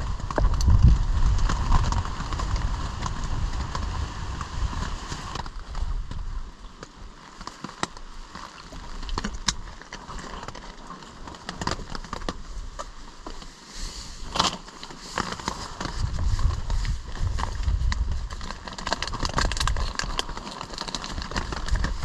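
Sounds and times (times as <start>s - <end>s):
wind buffeting microphone: 0.0s - 6.6s, 15.6s - 20.2s
sharp clicks and crackles: 0.0s - 13.6s, 14.2s - 22.0s.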